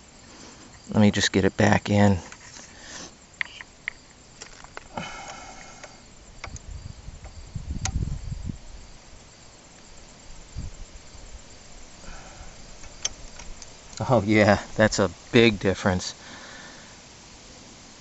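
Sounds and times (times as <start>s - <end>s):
crickets chirping: 0.0s - 18.0s
metallic clicks of parts: 12.8s - 14.0s.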